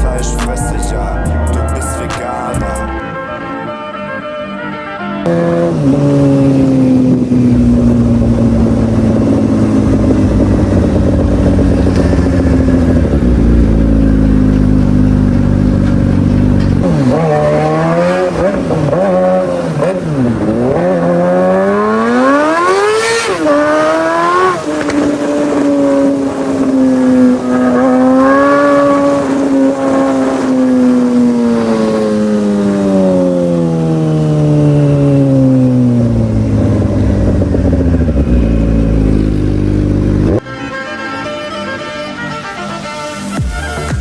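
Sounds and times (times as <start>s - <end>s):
motorcycle engine revving: 5.2s - 40.4s.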